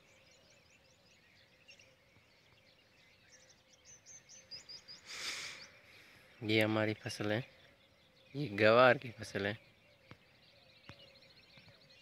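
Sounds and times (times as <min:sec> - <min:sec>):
small birds chirping: 0:00.0 - 0:12.0
short burst of hiss: 0:05.1 - 0:05.6.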